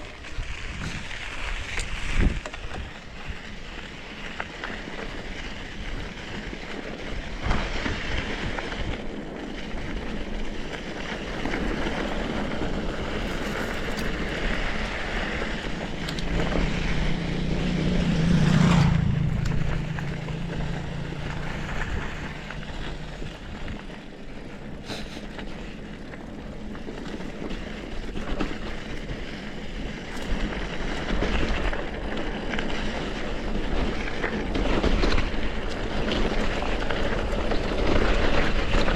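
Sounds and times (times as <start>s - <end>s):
bike rattling over rough ground: 0.0s - 38.9s
wind buffeting microphone: 0.0s - 38.9s
low hum: 10.0s - 29.1s.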